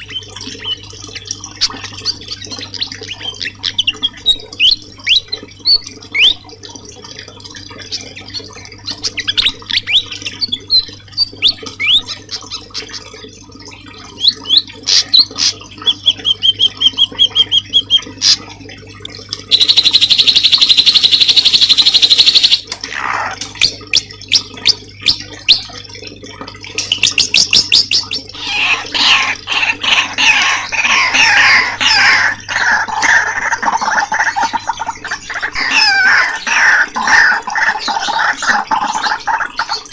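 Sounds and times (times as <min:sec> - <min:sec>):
birds chattering fast: 0:19.4 - 0:25.6, 0:26.8 - 0:39.9
bird buzzing trill: 0:19.5 - 0:22.6
songbird chirps and whistles: 0:19.5 - 0:22.6.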